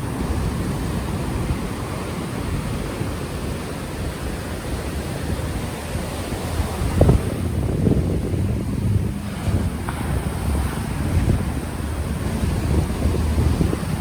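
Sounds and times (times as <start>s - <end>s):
ocean surf washing: 0.0s - 14.0s
wind buffeting microphone: 0.0s - 14.0s.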